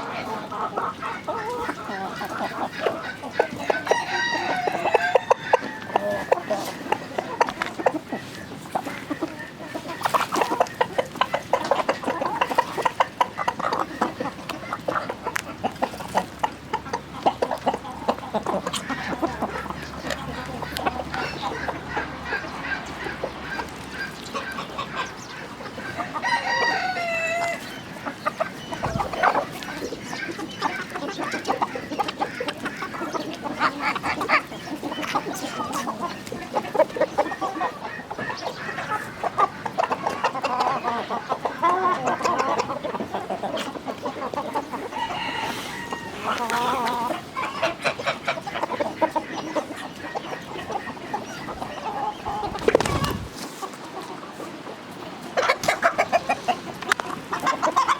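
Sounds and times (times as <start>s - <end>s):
chickens clucking: 0.0s - 57.9s
rooster crowing: 3.6s - 6.2s, 26.0s - 27.6s, 44.9s - 46.5s.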